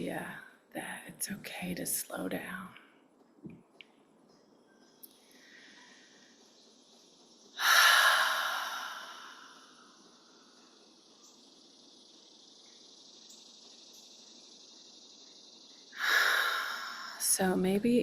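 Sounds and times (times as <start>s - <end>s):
faint high hiss: 4.6s - 18.0s
woman exhaling deeply: 7.6s - 10.0s, 16.0s - 17.3s.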